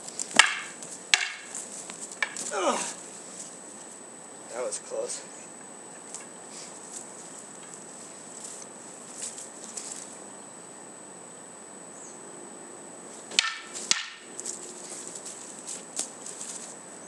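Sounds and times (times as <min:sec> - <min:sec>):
wooden swords clacking: 0:00.0 - 0:03.0, 0:13.3 - 0:16.6.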